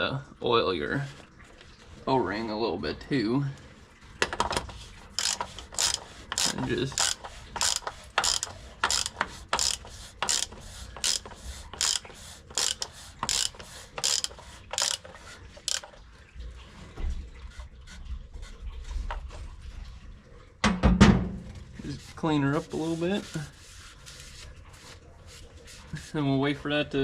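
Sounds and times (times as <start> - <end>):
ratchet wrench clicking: 5.2 - 15.1, 15.7 - 15.9.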